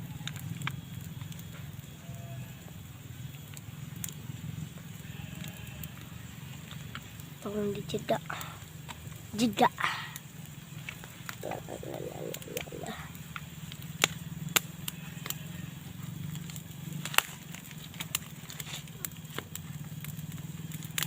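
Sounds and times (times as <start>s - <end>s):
steady low hum: 0.0s - 21.0s
wood fire crackling: 0.0s - 21.0s.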